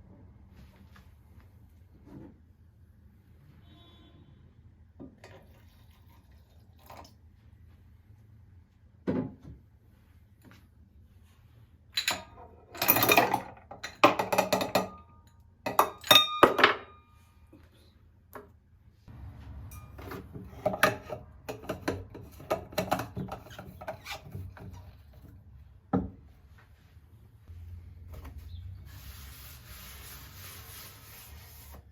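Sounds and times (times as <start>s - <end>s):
objects knocking and clattering: 12.0s - 15.1s, 19.7s - 26.2s.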